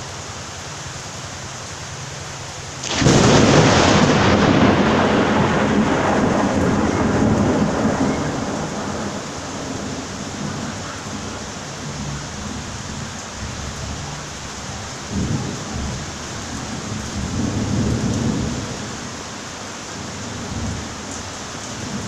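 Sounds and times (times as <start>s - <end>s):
steady rain: 0.0s - 22.0s
thunder clap rumbling: 2.8s - 14.0s.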